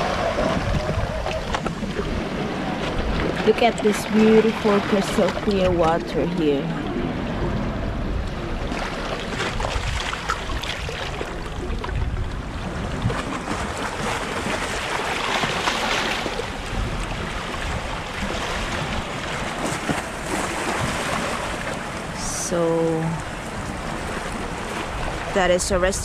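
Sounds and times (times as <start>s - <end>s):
wind rumbling on microphone: 0.0s - 26.0s.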